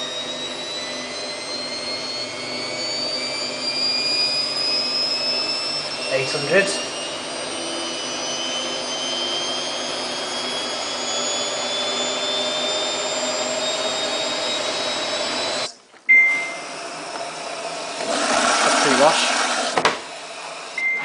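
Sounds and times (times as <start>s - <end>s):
short beep: 16.1s - 16.6s, 20.8s - 21.0s.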